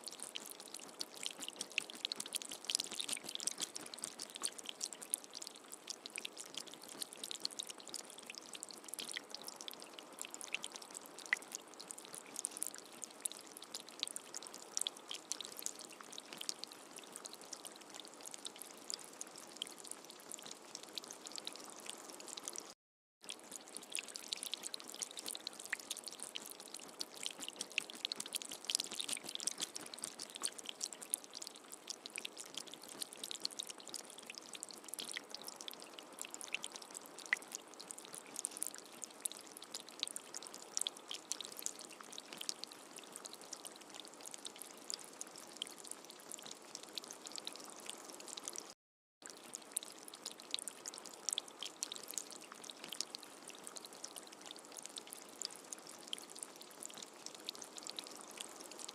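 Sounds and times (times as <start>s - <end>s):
steady rain hiss: 0.0s - 22.8s, 23.5s - 48.8s
raindrops ticking: 0.1s - 19.0s, 23.6s - 38.9s.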